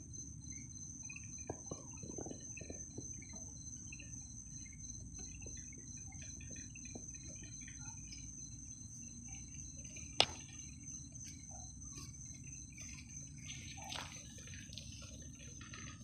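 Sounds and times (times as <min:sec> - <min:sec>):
crickets trilling: 0:00.0 - 0:16.0
low steady background noise: 0:00.0 - 0:16.0.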